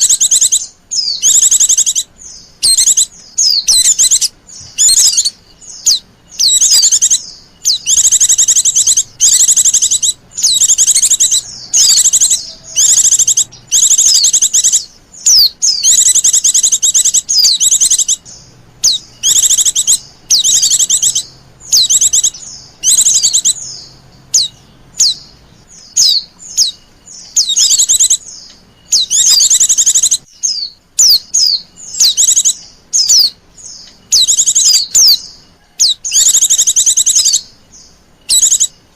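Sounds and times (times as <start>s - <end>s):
bird twittering with fast trill: 0.0s - 38.9s.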